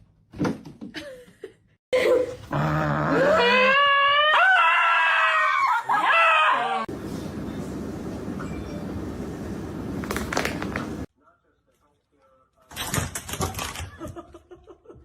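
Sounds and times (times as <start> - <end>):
dog howling: 3.0 - 6.9.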